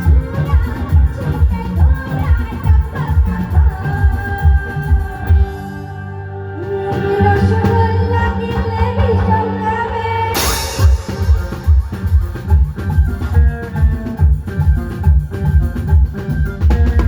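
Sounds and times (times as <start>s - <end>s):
drum beat: 10.8s - 17.0s.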